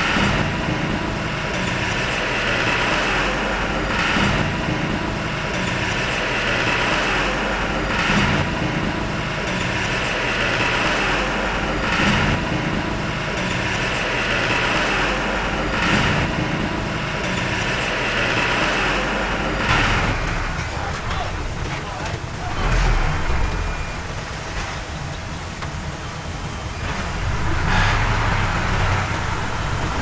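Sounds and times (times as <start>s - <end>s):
earthmoving machine diesel engine: 0.0s - 30.0s
hissing clattering swell: 9.1s - 30.0s.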